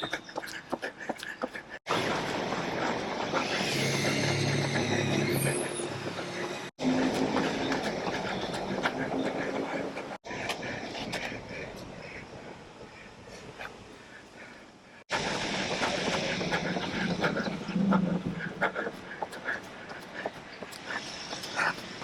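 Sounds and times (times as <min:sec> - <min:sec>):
runner's rhythmic footsteps: 0:00.0 - 0:03.5, 0:06.1 - 0:11.4, 0:15.2 - 0:22.0.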